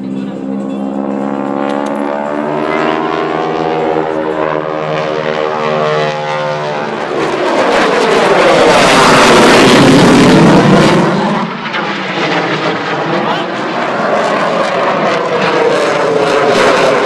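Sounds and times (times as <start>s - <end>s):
aircraft engine drone: 0.0s - 17.0s
aircraft rushing noise: 0.0s - 17.0s.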